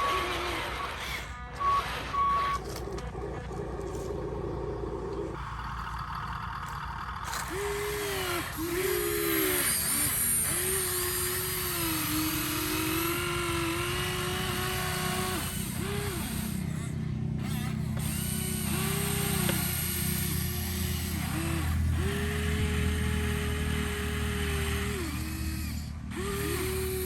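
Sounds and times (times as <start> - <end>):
short reversing beeps: 0.0 - 2.7
toy electric motor whining: 0.0 - 4.5, 5.2 - 27.0.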